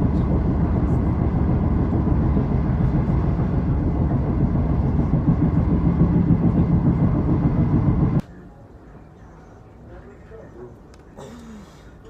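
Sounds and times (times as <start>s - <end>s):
train running noise: 0.0s - 8.2s
faint hum: 0.0s - 11.9s.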